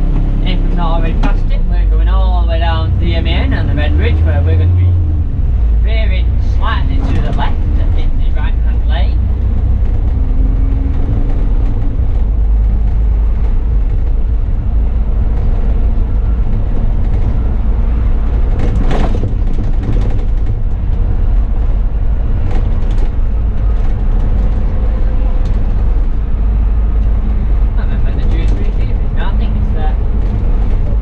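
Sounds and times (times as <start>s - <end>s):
bus engine and road rumble: 0.0s - 31.0s.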